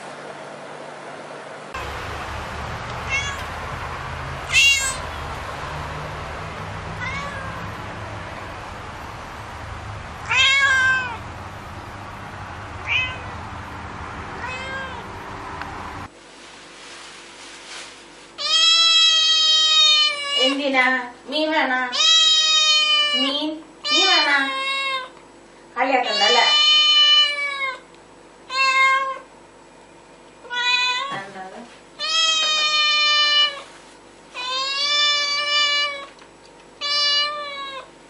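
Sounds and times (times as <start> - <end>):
steady background hum: 0.0 - 38.0
cat meowing: 3.0 - 3.6, 4.5 - 5.2, 6.9 - 7.8, 10.2 - 11.2, 12.8 - 13.4, 14.4 - 15.1, 18.4 - 20.6, 21.9 - 25.1, 26.0 - 27.8, 28.5 - 29.2, 30.4 - 31.2, 32.0 - 33.7, 34.4 - 36.2, 36.8 - 37.9.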